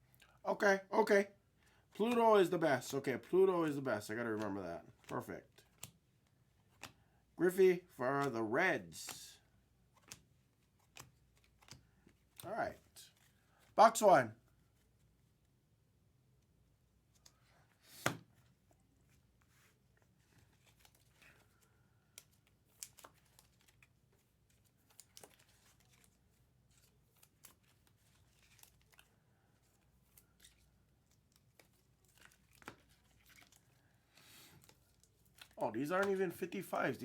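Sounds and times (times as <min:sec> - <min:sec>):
wrapping tearing and crinkling: 0:22.2 - 0:36.2.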